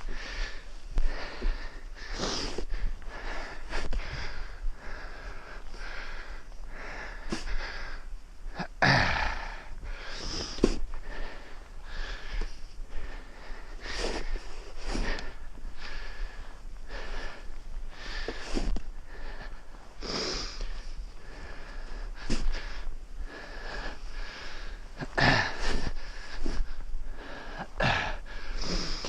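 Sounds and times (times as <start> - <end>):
man breathing heavily: 0.0 - 29.0
snow shovel scraping: 14.0 - 15.2, 22.2 - 22.6.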